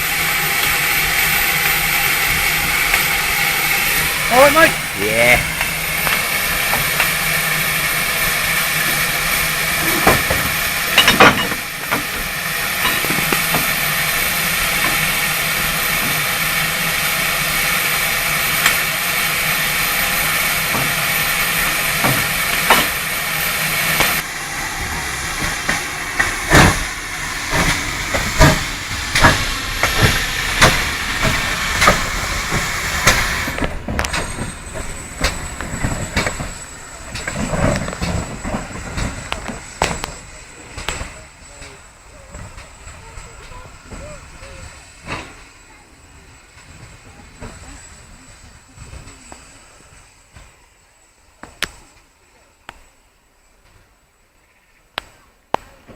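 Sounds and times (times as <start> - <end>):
steam hissing from a locomotive: 0.0 - 55.9
metallic clanks and knocks: 9.8 - 12.2.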